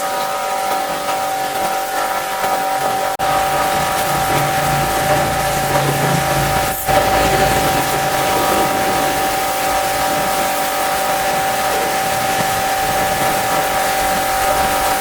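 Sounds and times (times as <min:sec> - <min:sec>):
pressure washer motor whine: 0:00.0 - 0:15.0
water spray hissing: 0:03.2 - 0:15.0.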